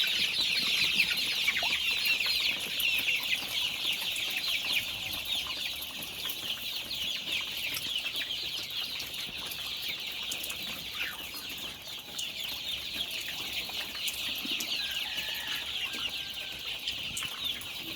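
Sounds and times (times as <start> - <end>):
flock of chickens peeping: 0.0 - 17.9.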